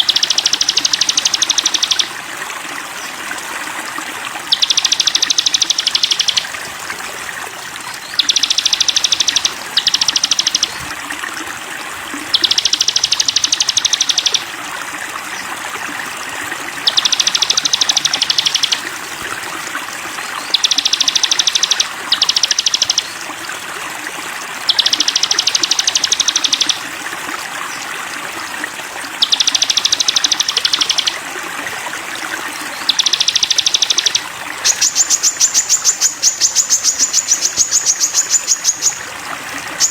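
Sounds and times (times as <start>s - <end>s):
bird singing a high trill: 0.0s - 2.2s, 4.5s - 6.6s, 7.9s - 10.9s, 12.3s - 14.5s, 16.8s - 18.9s, 20.4s - 23.2s, 24.7s - 26.8s, 29.2s - 31.2s, 32.8s - 39.1s
stream running water: 0.0s - 39.9s.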